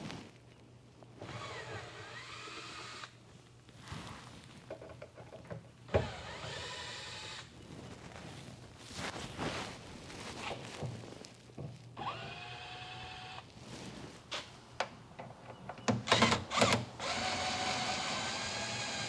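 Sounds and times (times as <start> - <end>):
power tool motor whining: 6.0 - 7.5, 12.0 - 13.4, 15.9 - 19.0.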